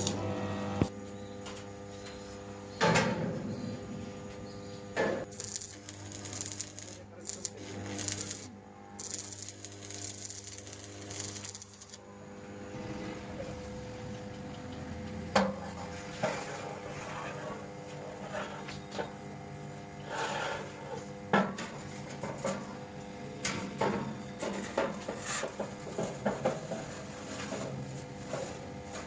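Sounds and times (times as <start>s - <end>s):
steady hum: 5.2s - 16.7s.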